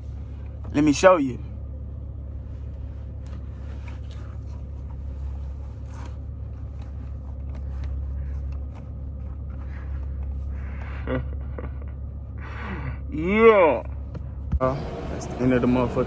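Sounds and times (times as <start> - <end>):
car engine idling: 0.0 - 16.0
scrapes and clicks of handling: 2.6 - 10.6.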